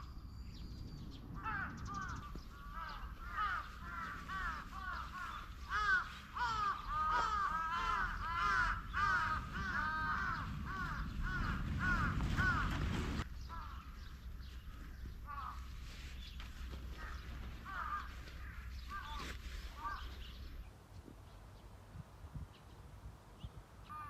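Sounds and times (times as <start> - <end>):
low rumble: 0.0 - 16.1
chorus of bird calls: 0.0 - 21.7, 23.4 - 24.0.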